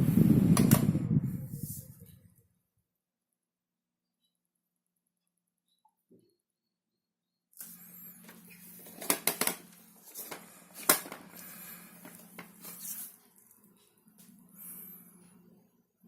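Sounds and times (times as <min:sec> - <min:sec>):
small fan motor hum: 0:00.0 - 0:02.4.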